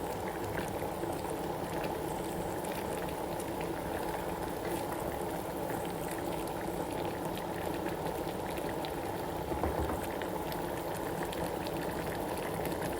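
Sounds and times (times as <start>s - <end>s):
soup bubbling in a pot: 0.0s - 12.9s.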